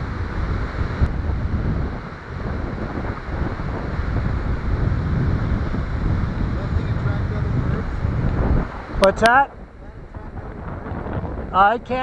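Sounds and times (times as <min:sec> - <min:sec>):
ocean surf: 0:00.0 - 0:12.0
wind buffeting microphone: 0:00.0 - 0:12.0.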